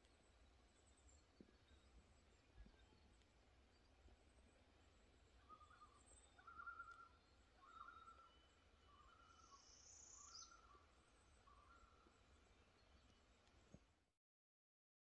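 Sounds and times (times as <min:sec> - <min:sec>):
bird calling: 0:05.4 - 0:10.9.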